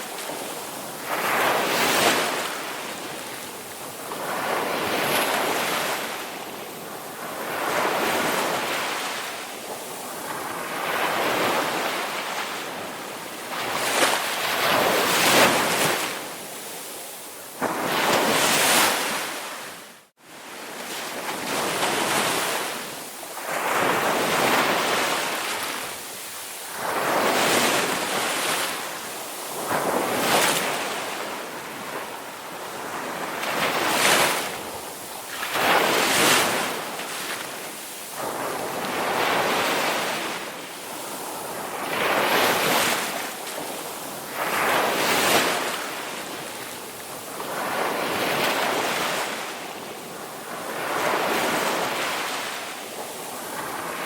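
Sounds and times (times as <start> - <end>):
waves breaking and washing in: 0.0 - 54.0.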